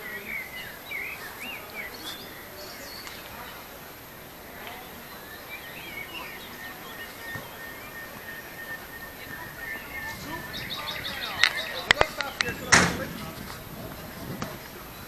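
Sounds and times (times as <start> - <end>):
outdoor background hiss: 0.0 - 15.0
songbirds chirping: 0.0 - 15.0
thin high steady tone: 4.5 - 12.5.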